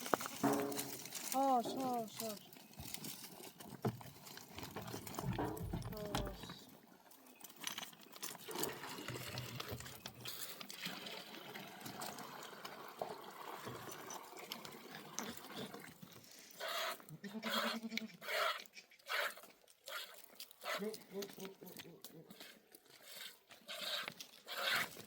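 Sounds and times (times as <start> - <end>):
livestock bleating: 17.2 - 18.2.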